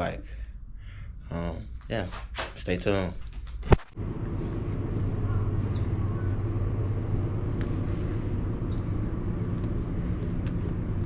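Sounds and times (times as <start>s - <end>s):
car engine running: 4.0s - 11.0s.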